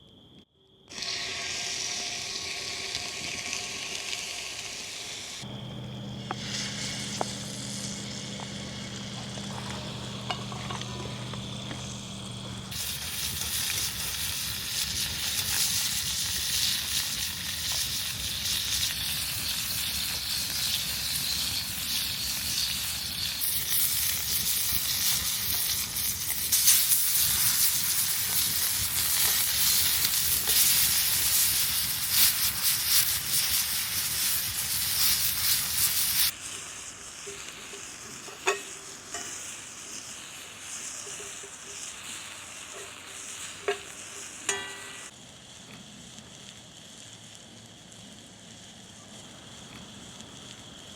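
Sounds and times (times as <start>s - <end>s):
food sizzling in oil: 0.9s - 45.5s
low steady hum: 5.4s - 12.7s.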